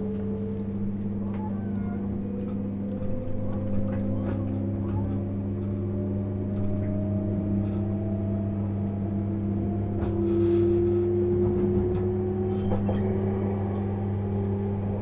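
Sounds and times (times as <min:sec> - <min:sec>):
electric train running: 0:07.3 - 0:15.0.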